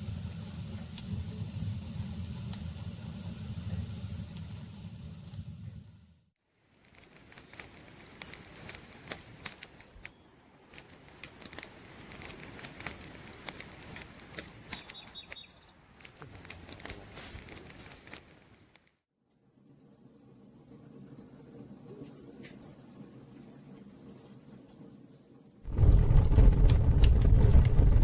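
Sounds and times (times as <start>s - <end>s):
campfire crackling: 6.7s - 14.7s, 25.7s - 28.0s.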